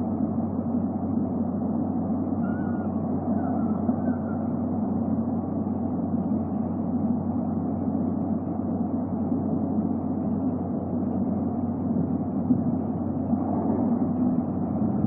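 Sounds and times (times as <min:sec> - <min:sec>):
constant low hum: 0:00.0 - 0:15.0
steady rushing noise: 0:09.8 - 0:15.0.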